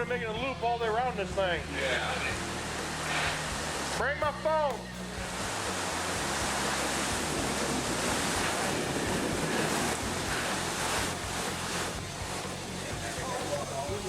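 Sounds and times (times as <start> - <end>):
heavy rain pouring: 0.0 - 14.0
gusting wind: 4.8 - 14.0.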